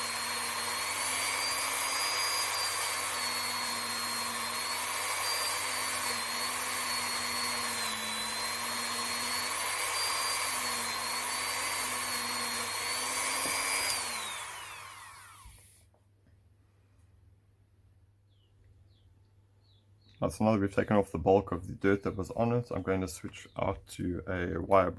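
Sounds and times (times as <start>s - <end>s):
rotary tool whining: 0.0s - 15.8s.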